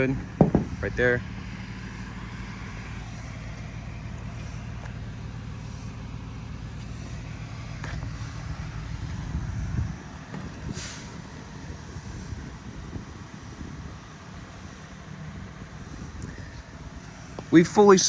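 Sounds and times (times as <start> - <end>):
truck engine running: 0.0 - 18.0
short hiss: 10.7 - 11.3.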